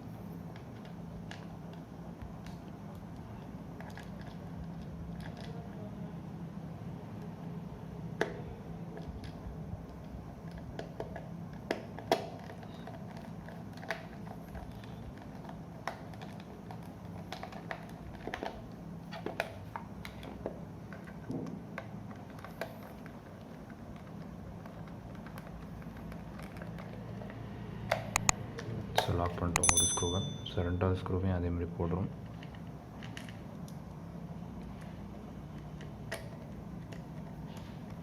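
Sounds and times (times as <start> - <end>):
low steady hum: 22.2 - 38.0.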